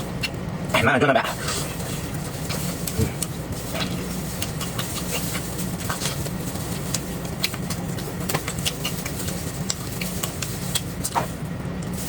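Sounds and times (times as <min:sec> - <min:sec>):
steady low hum: 0:00.0 - 0:12.0
wet chewing and mouth clicks: 0:02.8 - 0:11.2.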